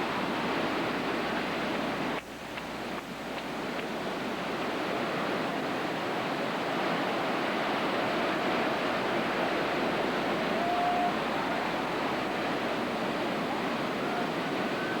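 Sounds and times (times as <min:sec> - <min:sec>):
hurricane wind: 0:03.6 - 0:15.0.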